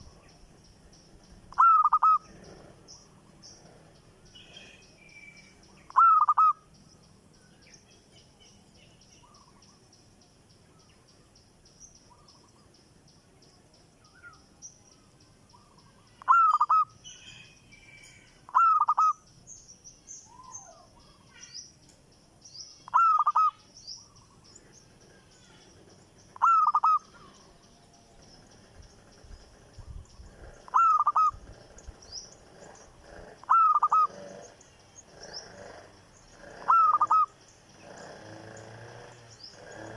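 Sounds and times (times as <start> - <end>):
caged bird calling loudly: 0.0 - 6.9, 15.4 - 21.7, 22.5 - 39.9
faint high-pitched chirping: 0.0 - 39.9.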